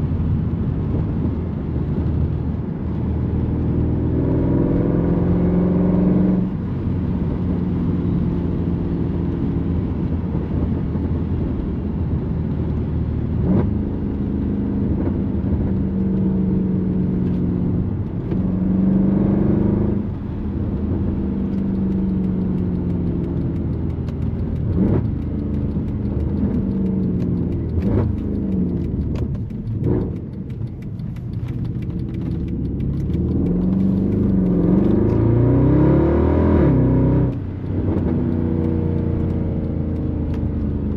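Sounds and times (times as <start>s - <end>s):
car engine revving: 0.2s - 40.9s
exhaust cracks: 14.8s - 40.9s.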